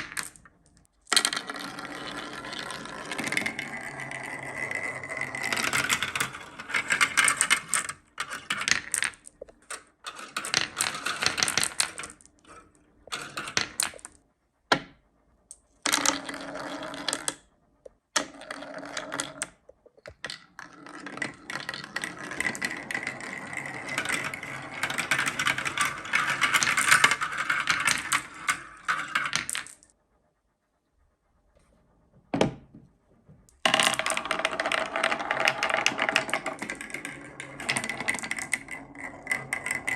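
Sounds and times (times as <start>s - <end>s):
marbles clattering down a track: 0.0s - 0.5s, 1.1s - 14.1s, 20.1s - 29.9s, 33.6s - 39.9s.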